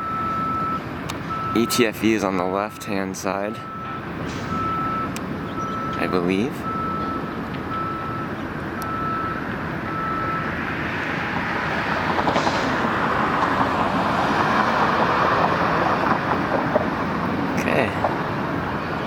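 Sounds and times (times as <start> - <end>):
reversing alarm beeping: 0.0 - 11.4
vehicle and traffic noise: 0.0 - 19.0.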